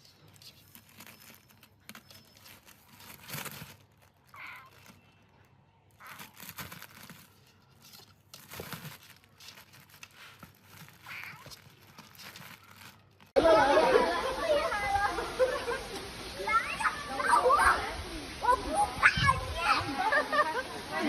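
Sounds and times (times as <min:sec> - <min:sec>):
rustling and crinkling: 0:00.0 - 0:13.4.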